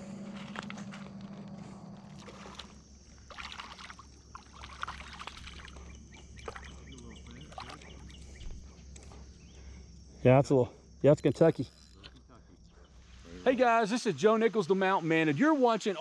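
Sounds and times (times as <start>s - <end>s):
steady low rumble: 0.0s - 3.3s
water splashing and sloshing: 0.0s - 8.6s.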